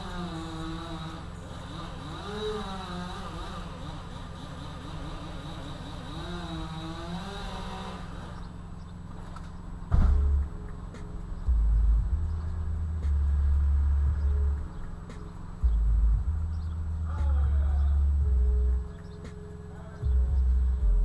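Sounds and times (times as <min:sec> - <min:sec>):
chainsaw engine revving: 0:00.0 - 0:09.6
steady low hum: 0:00.0 - 0:21.0.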